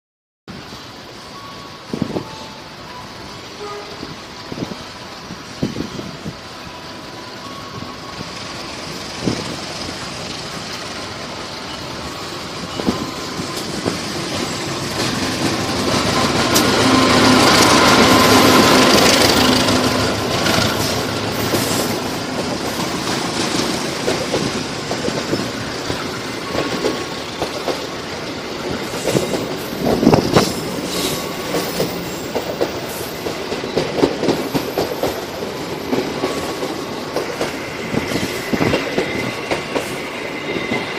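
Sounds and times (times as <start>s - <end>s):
diesel locomotive engine passing: 0.5s - 40.9s
clickety-clack of wheels: 12.7s - 40.9s.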